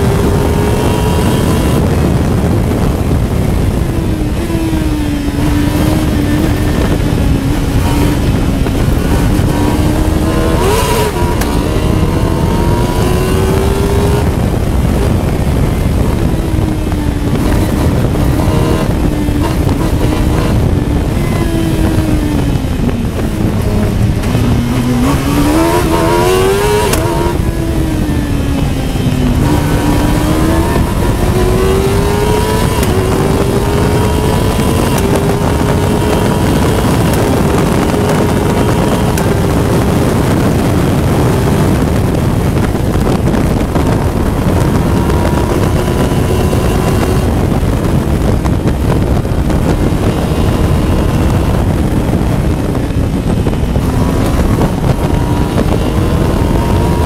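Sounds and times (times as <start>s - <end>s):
high-revving motorcycle engine: 0.0s - 57.0s
wind rush: 0.0s - 57.0s.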